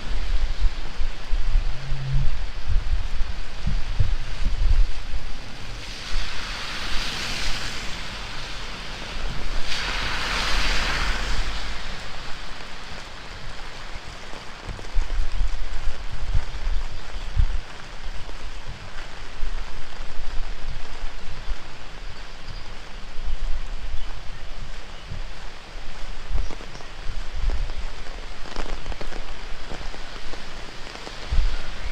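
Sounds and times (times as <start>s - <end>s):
wind buffeting microphone: 0.0s - 7.7s, 14.6s - 31.9s
heavy rain falling: 0.0s - 31.9s.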